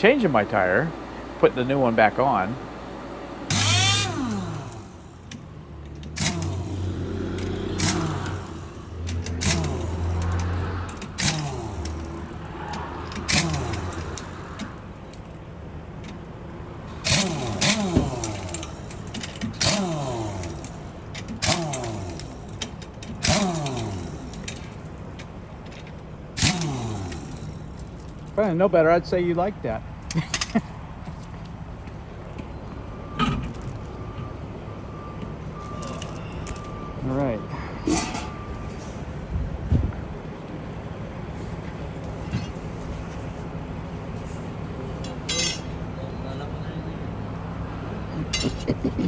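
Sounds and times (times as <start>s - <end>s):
vehicle engine idling: 0.0s - 48.3s
pneumatic impact wrench hammering: 3.5s - 15.4s, 16.9s - 28.4s, 45.1s - 45.8s.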